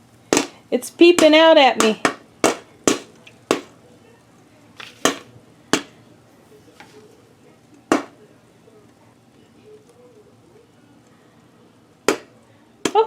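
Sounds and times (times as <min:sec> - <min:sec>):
popcorn kernels popping: 0:00.0 - 0:03.8, 0:04.8 - 0:06.0, 0:07.8 - 0:08.2, 0:12.0 - 0:13.0.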